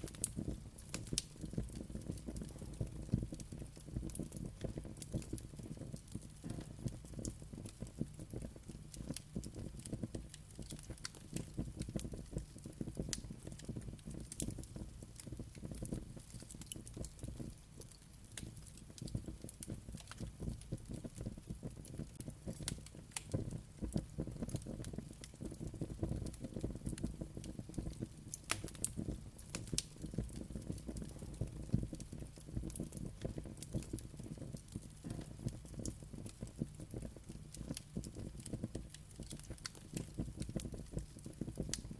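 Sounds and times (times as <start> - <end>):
fire crackling and popping: 0.0 - 41.9
flames rumbling in fireplace: 0.0 - 41.9.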